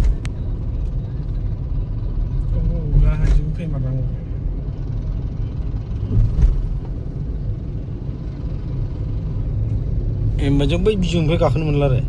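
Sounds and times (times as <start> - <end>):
road traffic rumble: 0.0 - 12.0
short thump: 6.1 - 7.0.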